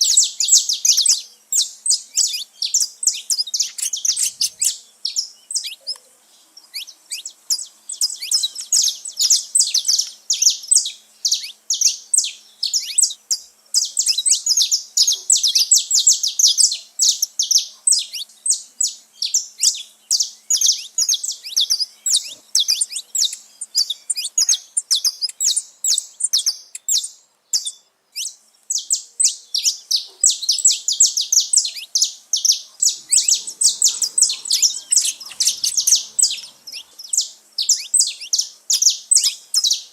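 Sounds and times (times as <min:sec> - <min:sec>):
finches singing and chirping: 0:00.0 - 0:39.9.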